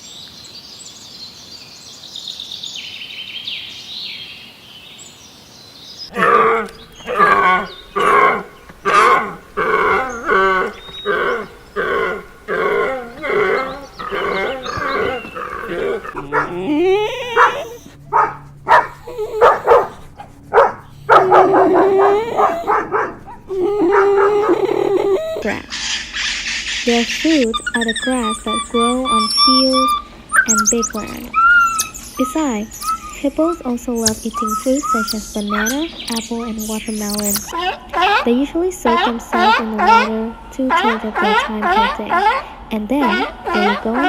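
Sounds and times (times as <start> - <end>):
dog barking: 6.2 - 25.5, 38.9 - 44.0
dog whining: 6.2 - 25.7, 27.3 - 38.3, 38.9 - 44.0.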